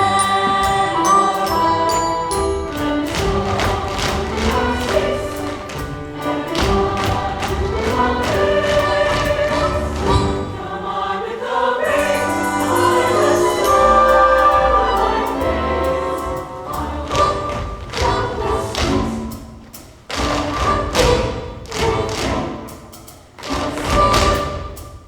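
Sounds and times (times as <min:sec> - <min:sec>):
chorus singing with orchestra: 0:00.0 - 0:25.0
sharp thuds on the beat: 0:02.8 - 0:10.6.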